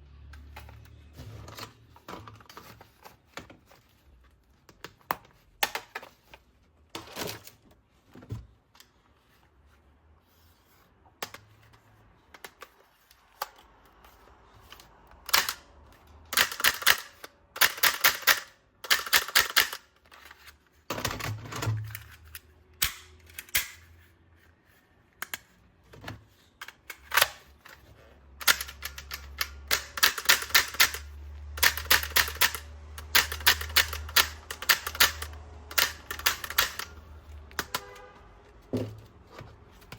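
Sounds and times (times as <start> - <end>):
plastic toy gun clicking: 15.2 - 15.7, 16.3 - 20.4, 21.8 - 23.9, 28.4 - 37.0.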